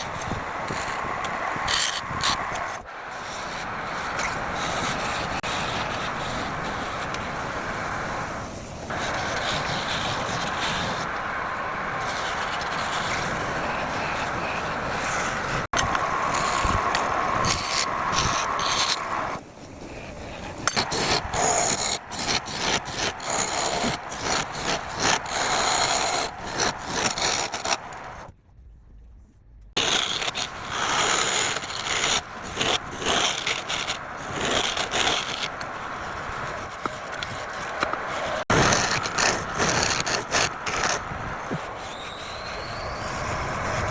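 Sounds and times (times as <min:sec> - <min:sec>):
wood rasping on a lathe: 0:12.0 - 0:19.4, 0:20.6 - 0:28.3, 0:29.8 - 0:42.9.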